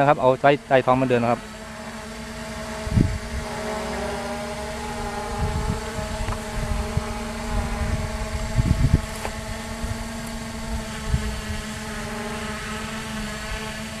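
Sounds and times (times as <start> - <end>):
drone motors whining: 0.0 - 14.0
wind thumping on microphone: 2.8 - 3.5, 5.0 - 11.7.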